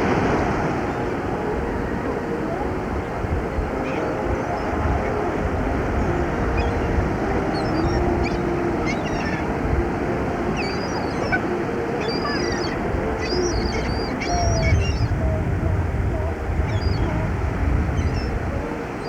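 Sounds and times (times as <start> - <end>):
surf: 0.0 - 19.0
wind: 0.0 - 19.0
seagulls squawking: 3.0 - 15.2, 16.7 - 17.1.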